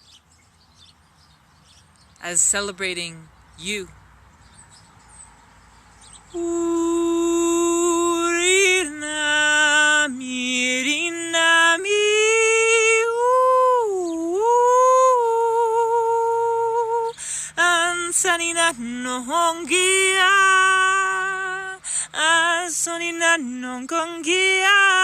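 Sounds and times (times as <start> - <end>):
woman singing unaccompanied: 6.3 - 25.0.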